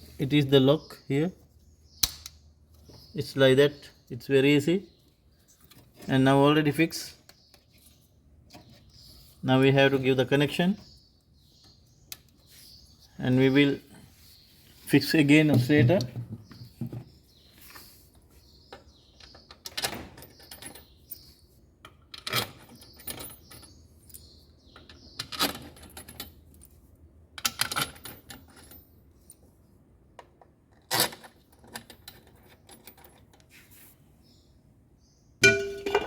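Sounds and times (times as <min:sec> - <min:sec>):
metallic clicks of screws and tools: 0:02.0 - 0:02.8.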